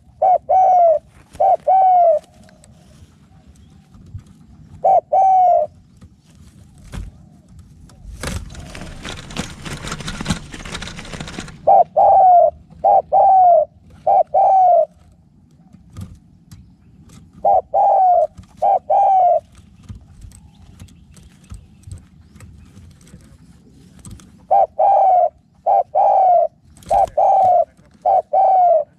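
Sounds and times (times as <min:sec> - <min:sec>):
dove cooing: 0:00.0 - 0:06.0, 0:06.8 - 0:16.1, 0:17.2 - 0:20.9, 0:23.0 - 0:28.9
rustling noise: 0:00.9 - 0:11.8, 0:18.2 - 0:25.8, 0:26.6 - 0:28.2.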